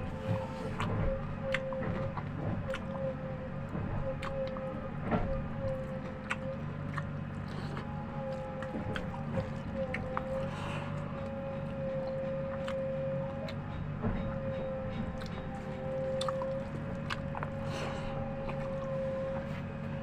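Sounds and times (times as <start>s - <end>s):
mechanical hum: 0.0s - 20.0s.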